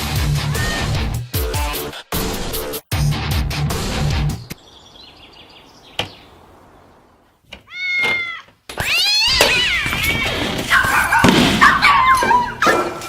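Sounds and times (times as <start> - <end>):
cat meowing and yowling: 7.7 - 11.2.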